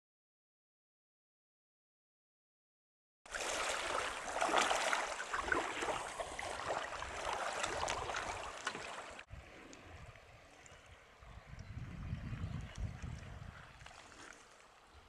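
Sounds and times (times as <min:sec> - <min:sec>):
water splashing and gurgling: 0:03.3 - 0:10.4.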